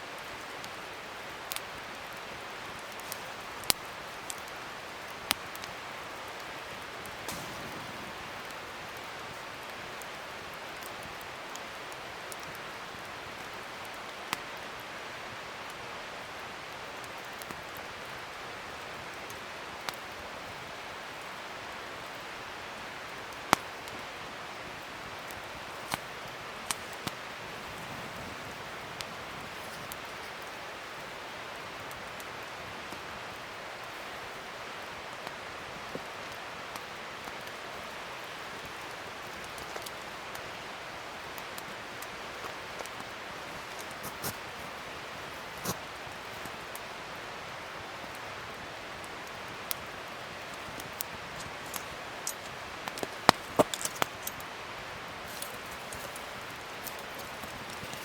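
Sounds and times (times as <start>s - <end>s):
fire crackles: 0.0s - 58.0s
wood fire hissing: 0.1s - 58.0s
loud sharp pop: 7.3s - 8.6s.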